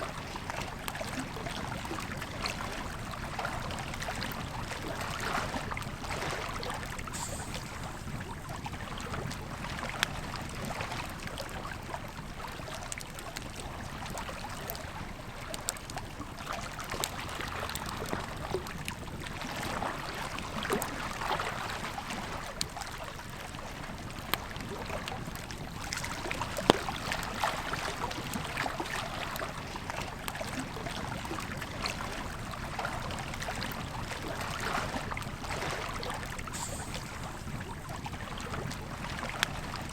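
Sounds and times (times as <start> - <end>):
campfire crackling and popping: 24.3 - 29.4
river flowing: 24.6 - 39.9.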